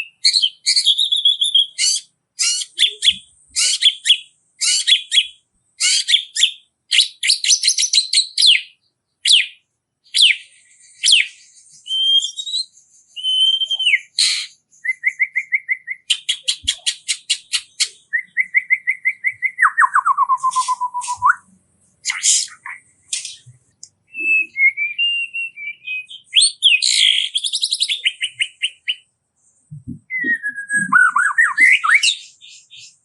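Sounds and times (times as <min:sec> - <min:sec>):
songbird singing: 0:00.0 - 0:33.0.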